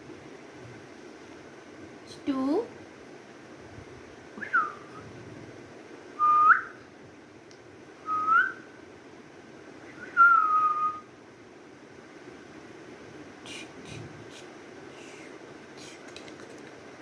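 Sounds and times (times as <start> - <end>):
whistled notes: 10.0 - 11.0.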